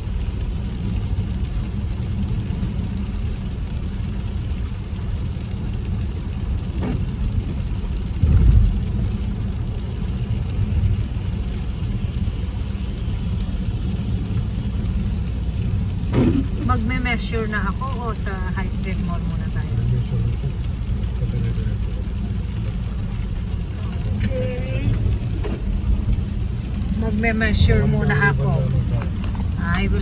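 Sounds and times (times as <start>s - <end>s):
engine and tyre rumble: 0.0s - 30.0s
low thump: 16.0s - 16.6s.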